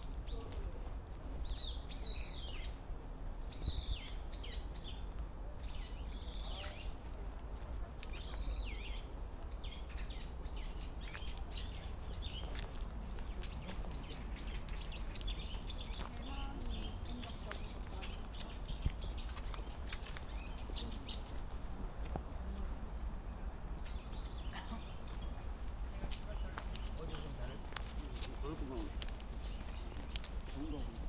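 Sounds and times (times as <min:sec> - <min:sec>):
small birds chirping: 0:01.4 - 0:02.8, 0:03.5 - 0:07.1, 0:08.0 - 0:21.6, 0:23.2 - 0:31.0
steady low rumble: 0:02.6 - 0:31.0.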